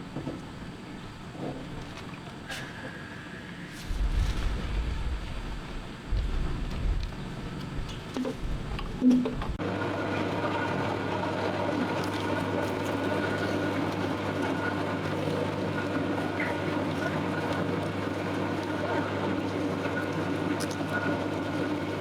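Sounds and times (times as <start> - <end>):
motor humming: 3.6 - 9.6.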